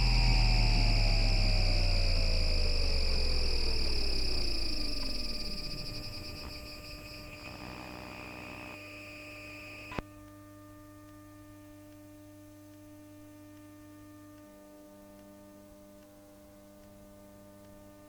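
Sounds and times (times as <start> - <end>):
low hum: 0.0 - 8.8
high steady inverter tones: 0.0 - 10.0
tram motor whine falling in pitch: 0.0 - 10.0
click: 0.0 - 10.1.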